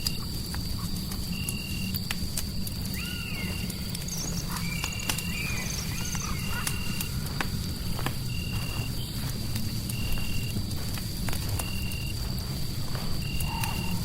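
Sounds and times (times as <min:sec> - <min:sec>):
fire crackling: 0:00.0 - 0:14.0
high insect drone: 0:00.0 - 0:14.0
animal calls: 0:02.9 - 0:07.3, 0:13.3 - 0:14.0.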